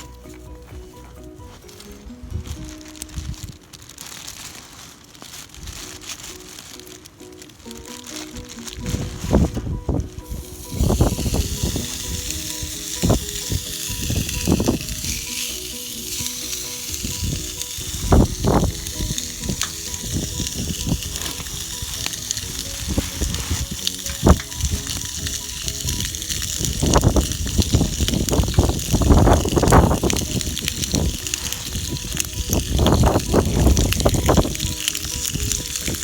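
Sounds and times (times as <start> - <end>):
background music: 0.0 - 4.4, 5.5 - 36.0
steak sizzling in a pot: 10.1 - 36.0.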